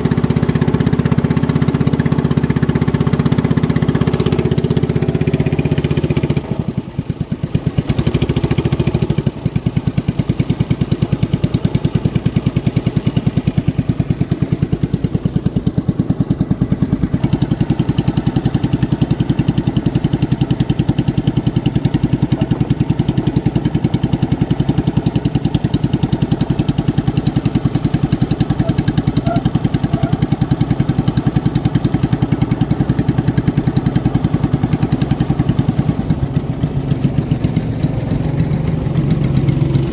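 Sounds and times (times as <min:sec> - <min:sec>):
motorboat engine pulsing: 0:16.6 - 0:39.9.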